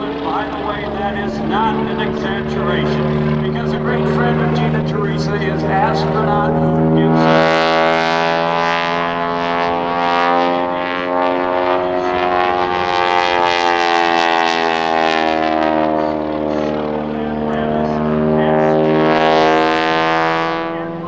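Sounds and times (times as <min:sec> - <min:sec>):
propeller plane engine drone: 0:00.0 - 0:21.0.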